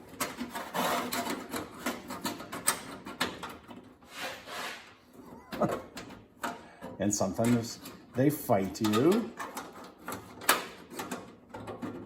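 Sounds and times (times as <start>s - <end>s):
metal scraping: 0.0s - 5.1s.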